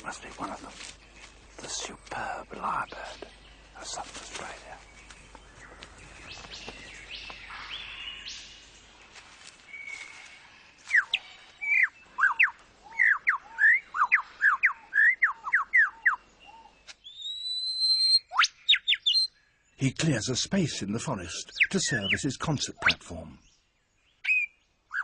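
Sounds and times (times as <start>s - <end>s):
lyrebird whistled song: 9.7s - 19.4s, 21.5s - 22.2s, 22.8s - 25.0s
soft bird whistles: 17.1s - 19.3s.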